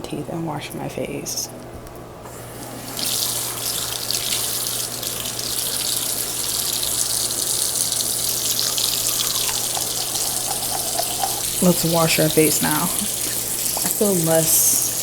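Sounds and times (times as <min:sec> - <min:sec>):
tap running into sink: 0:08.5 - 0:14.0.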